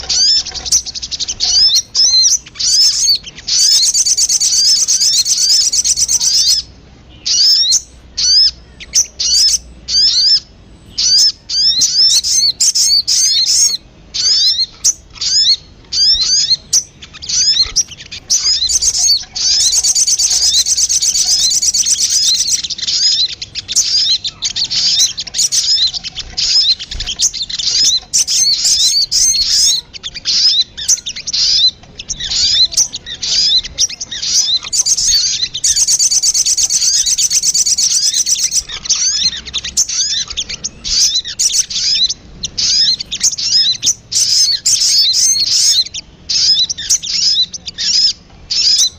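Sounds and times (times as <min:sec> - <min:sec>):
bird fast trill: 0:00.0 - 0:48.9
bird high downward chirps: 0:00.0 - 0:48.9.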